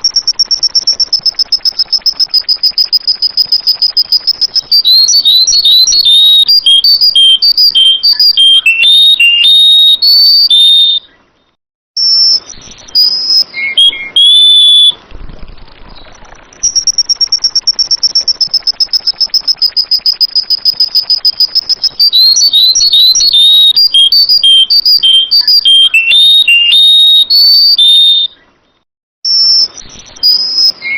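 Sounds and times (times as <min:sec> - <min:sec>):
bird singing whistled notes and trills: 0:00.0 - 0:30.9.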